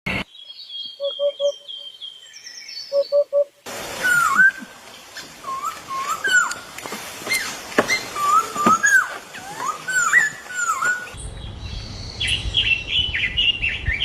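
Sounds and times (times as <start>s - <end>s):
high bird chirps: 0.4s - 3.5s
whistled bird calls: 0.8s - 6.7s, 7.3s - 14.0s.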